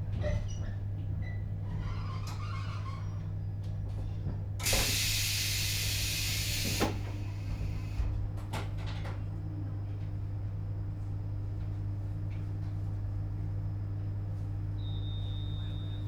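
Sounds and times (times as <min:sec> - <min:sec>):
hissing air burst: 0:04.7 - 0:07.3.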